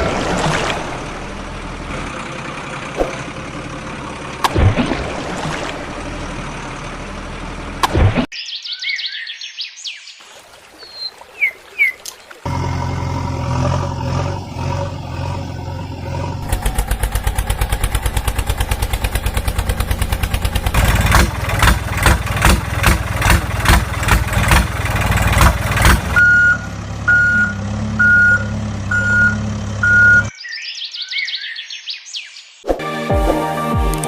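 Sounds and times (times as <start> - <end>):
truck engine chugging: 1.0 - 4.5, 5.8 - 7.8, 12.5 - 30.3
reversing beeps: 26.2 - 30.3.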